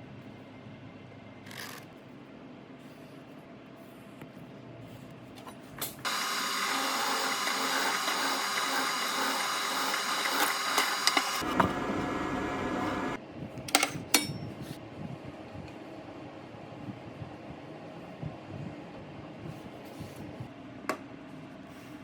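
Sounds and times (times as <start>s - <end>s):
power tool motor whining: 6.0s - 13.2s.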